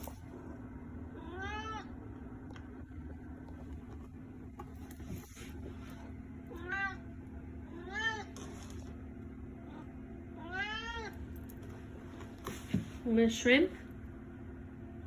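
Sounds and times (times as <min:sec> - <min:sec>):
cat meowing: 0:01.2 - 0:01.9, 0:06.5 - 0:07.0, 0:10.4 - 0:11.2.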